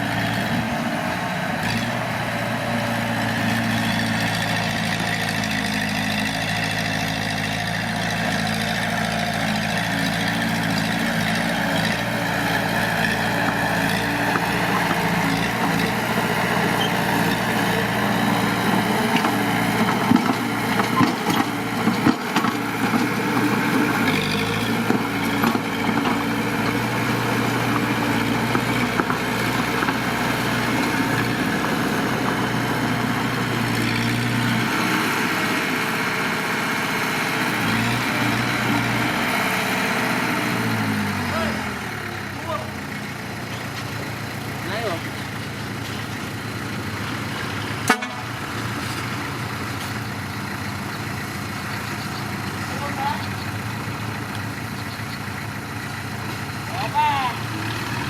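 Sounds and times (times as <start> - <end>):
heavy diesel engine running: 0.0 - 58.0
sharp clanks and knocks: 19.1 - 23.8, 47.8 - 48.3.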